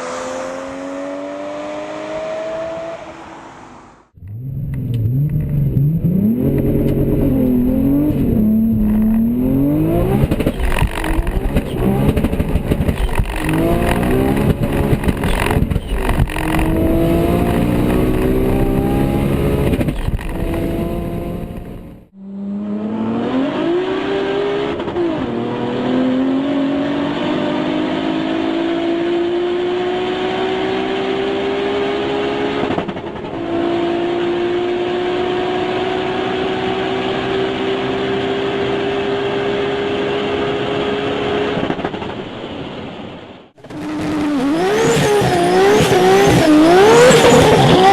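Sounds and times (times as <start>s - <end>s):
engine crackling: 4.2s - 22.0s
turbo engine revving: 4.2s - 32.6s, 43.6s - 47.9s.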